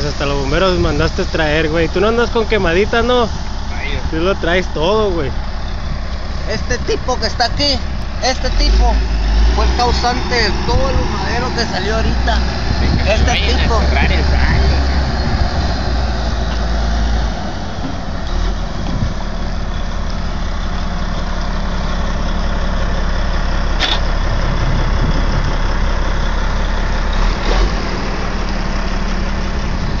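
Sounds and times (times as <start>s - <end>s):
truck engine idling: 0.0s - 30.0s
sharp click: 23.8s - 24.1s.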